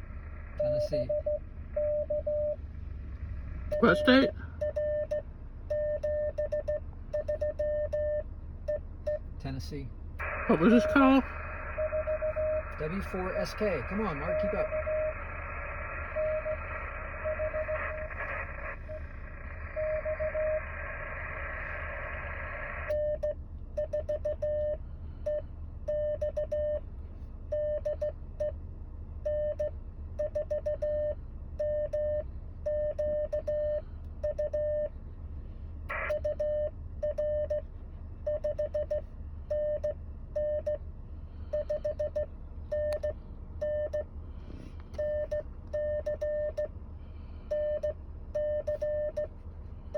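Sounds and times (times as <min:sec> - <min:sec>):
morse code tone: 0:03.7 - 0:09.2, 0:10.2 - 0:19.0, 0:19.6 - 0:20.8, 0:41.5 - 0:44.0, 0:47.5 - 0:49.3
radio receiver hiss: 0:10.2 - 0:23.0.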